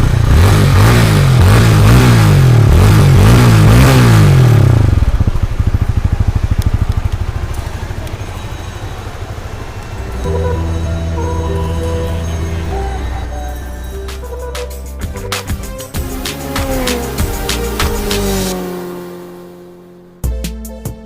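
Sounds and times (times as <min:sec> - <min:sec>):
motorcycle engine revving and idling: 0:00.0 - 0:20.3
music: 0:09.7 - 0:18.7, 0:20.2 - 0:21.0.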